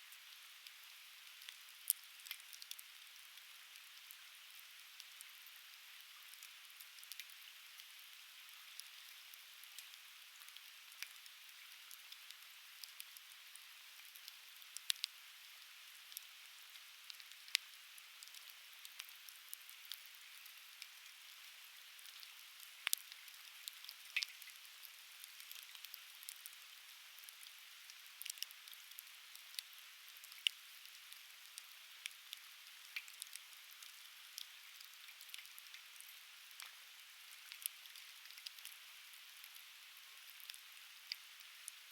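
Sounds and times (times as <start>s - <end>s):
firewood crackling and popping: 22.0s - 26.6s, 27.2s - 38.8s.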